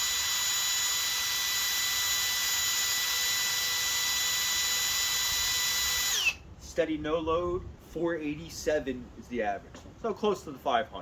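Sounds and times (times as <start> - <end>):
cordless drill motor whine: 0.0 - 6.5.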